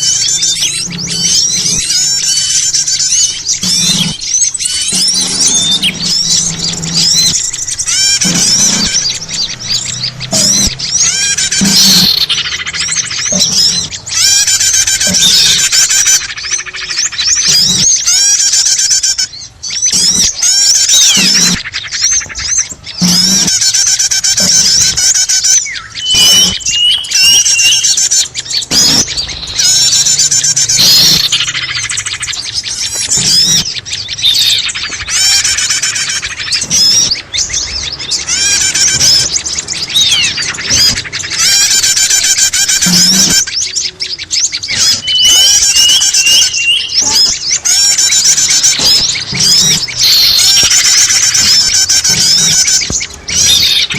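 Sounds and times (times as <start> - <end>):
songbirds chirping and trilling: 0.0 - 53.9.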